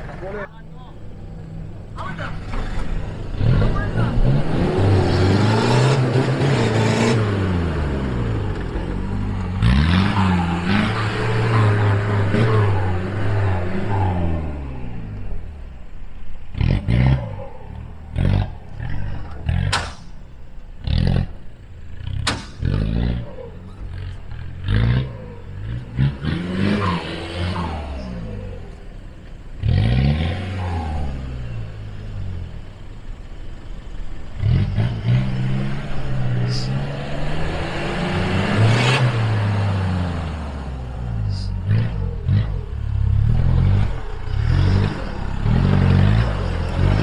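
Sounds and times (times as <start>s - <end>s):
engine revving: 2.0s - 47.0s.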